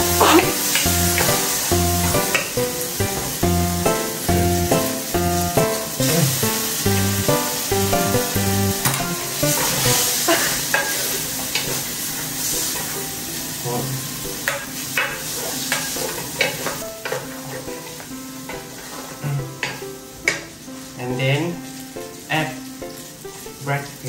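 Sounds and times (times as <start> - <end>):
food sizzling in a pan: 0.0 - 24.0
spatula scraping a pan: 9.4 - 11.9, 14.4 - 20.4.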